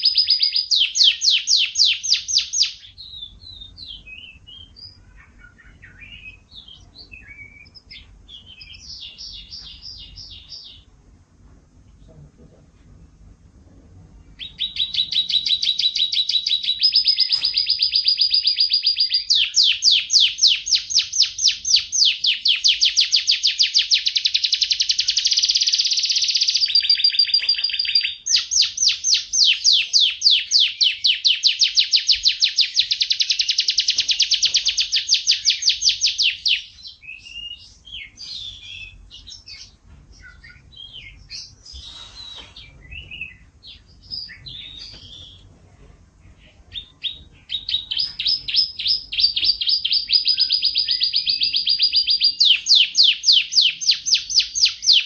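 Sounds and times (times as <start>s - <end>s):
bird chirps and whistles: 0.0s - 10.9s, 14.4s - 45.4s, 47.0s - 55.0s
canary singing trills: 0.0s - 11.0s, 14.1s - 45.5s, 46.2s - 55.0s.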